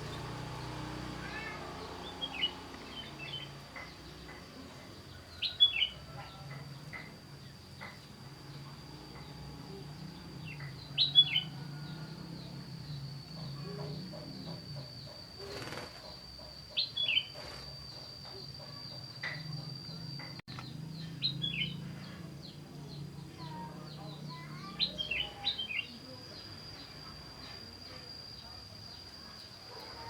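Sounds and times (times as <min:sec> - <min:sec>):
high-pitched whine: 0:00.0 - 0:29.9
small birds chirping: 0:00.0 - 0:30.0
wings fluttering: 0:15.3 - 0:16.2, 0:17.3 - 0:17.8.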